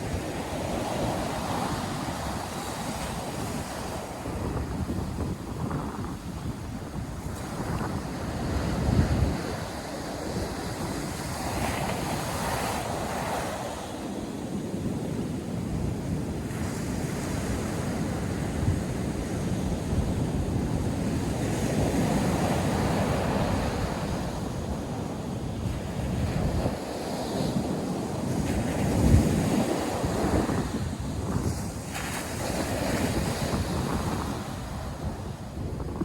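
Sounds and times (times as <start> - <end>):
ocean surf breaking on beach: 0.0 - 36.0
wind buffeting microphone: 0.0 - 36.0.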